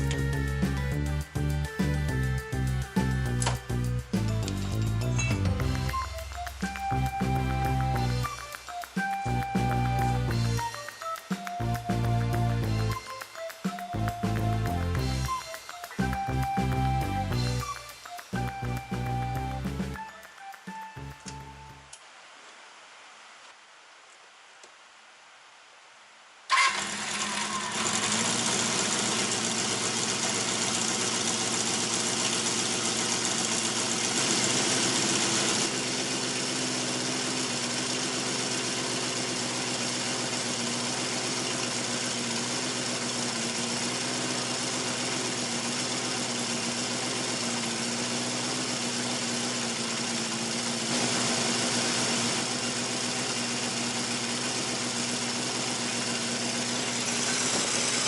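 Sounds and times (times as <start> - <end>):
motorcycle engine starting and idling: 0.0 - 8.5, 26.5 - 58.0.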